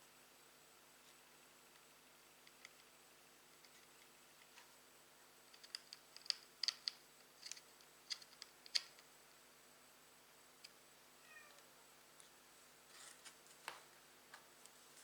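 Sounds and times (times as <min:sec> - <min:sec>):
small sharp clicks and taps: 0:05.5 - 0:09.1.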